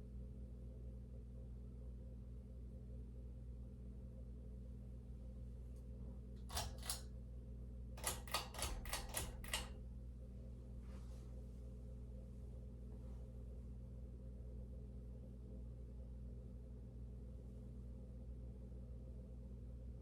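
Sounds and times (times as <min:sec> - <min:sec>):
ceiling fan motor hum: 0:00.0 - 0:20.0
sharp clicks: 0:06.5 - 0:07.0, 0:08.0 - 0:09.8.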